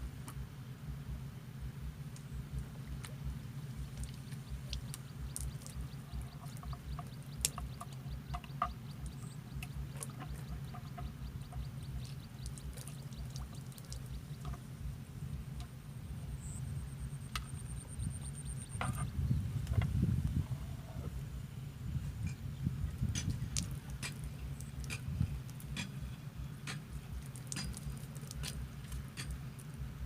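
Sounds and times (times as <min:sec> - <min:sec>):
low rumble: 0:00.0 - 0:28.0
fast faint high ticks: 0:01.8 - 0:14.7, 0:23.0 - 0:29.9.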